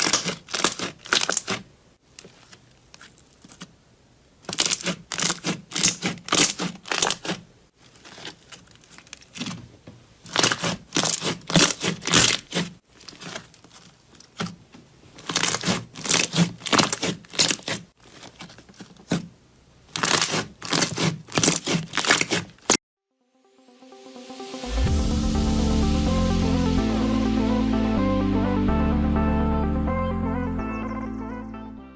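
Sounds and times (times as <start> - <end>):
slime crackling and popping: 0.0 - 1.6, 4.5 - 7.4, 15.2 - 17.8, 19.9 - 22.8.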